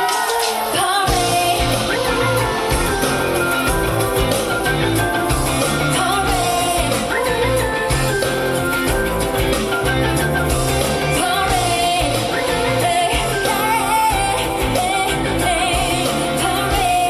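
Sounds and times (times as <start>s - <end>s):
pop-rock band playing: 0.0s - 17.0s
woman singing lead: 0.0s - 17.0s.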